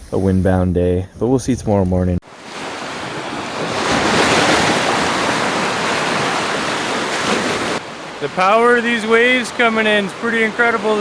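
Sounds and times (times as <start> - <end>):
waves breaking on beach: 2.2 - 11.0.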